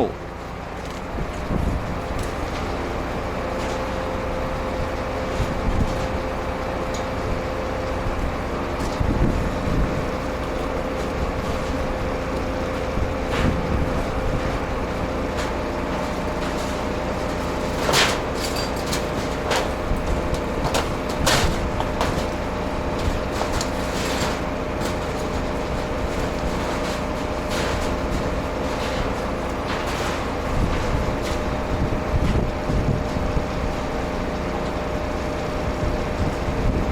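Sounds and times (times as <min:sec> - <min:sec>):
diesel truck engine running: 0:00.0 - 0:36.9
sharp knocks and clanks: 0:15.3 - 0:31.6.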